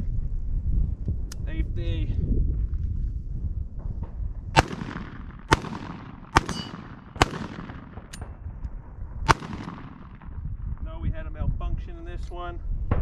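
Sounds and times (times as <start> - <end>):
gunshots with echo: 4.6 - 8.5, 9.3 - 10.6.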